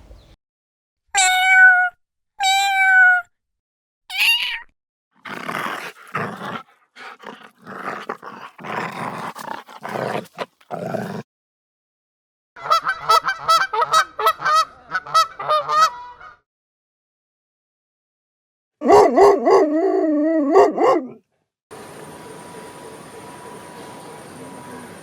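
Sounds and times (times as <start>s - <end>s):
cat meowing: 1.2s - 3.3s, 4.1s - 4.7s
cat growling: 5.3s - 11.2s.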